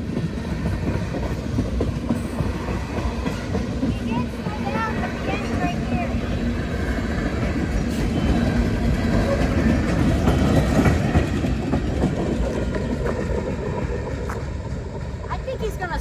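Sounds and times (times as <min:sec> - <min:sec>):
freight train wheels rumbling on rail: 0:00.0 - 0:16.0.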